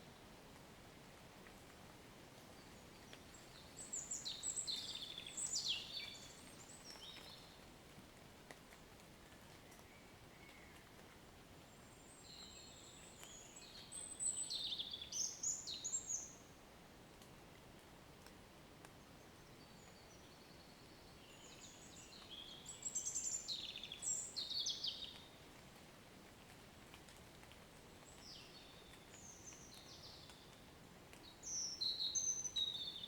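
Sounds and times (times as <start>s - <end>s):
faint background hiss: 0.0s - 33.0s
songbird singing: 2.6s - 7.6s, 9.6s - 11.0s, 11.7s - 16.6s, 19.1s - 25.4s, 28.0s - 33.0s.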